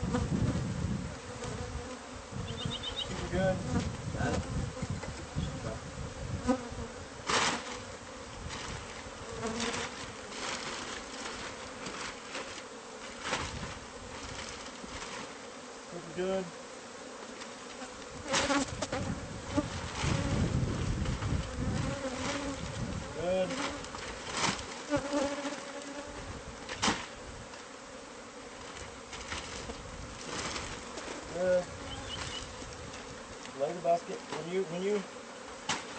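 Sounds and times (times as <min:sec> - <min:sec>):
honeybees buzzing: 0:00.0 - 0:35.9
rustle: 0:00.0 - 0:35.9
single bee passing close: 0:00.0 - 0:35.9.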